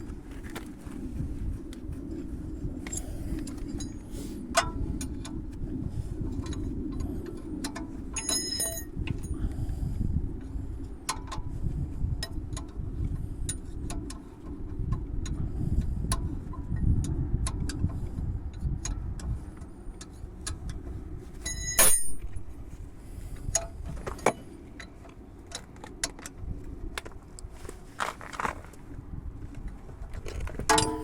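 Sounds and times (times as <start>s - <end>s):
low steady rumble: 0.0s - 31.0s
ringing metal clink: 8.2s - 8.9s, 21.4s - 22.3s, 30.7s - 31.0s
hand tools clicking on metal: 30.7s - 31.0s.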